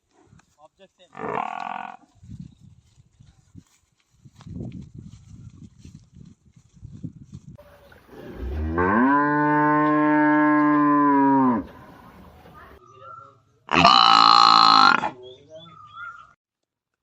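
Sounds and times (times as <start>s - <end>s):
cow mooing: 8.2s - 11.7s, 13.7s - 15.1s.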